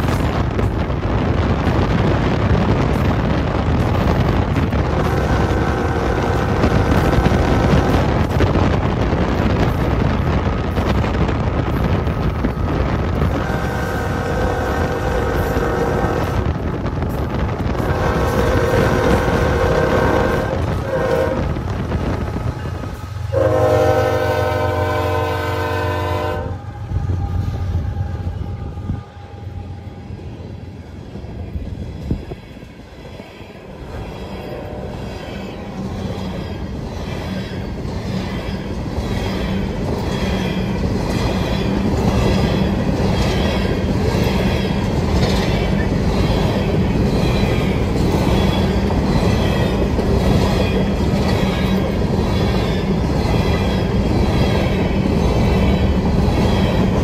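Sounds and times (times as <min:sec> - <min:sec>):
locomotive horn blast: 0:04.9 - 0:08.0, 0:13.3 - 0:16.5, 0:17.7 - 0:21.6, 0:23.3 - 0:30.1, 0:34.4 - 0:35.2.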